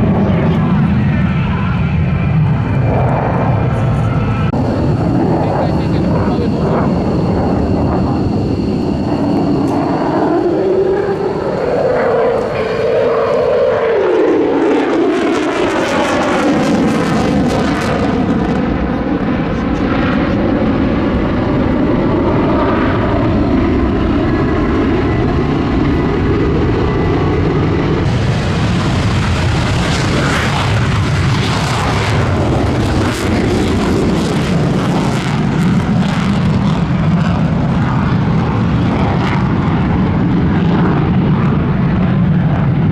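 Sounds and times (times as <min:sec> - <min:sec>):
jet fighters flying overhead: 0:00.0 - 0:42.9.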